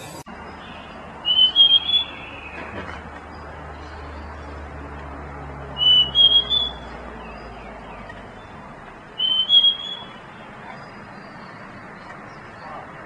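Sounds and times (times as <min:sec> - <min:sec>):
bird whistling high notes: 0:01.2 - 0:02.6, 0:05.8 - 0:06.9, 0:09.2 - 0:10.3.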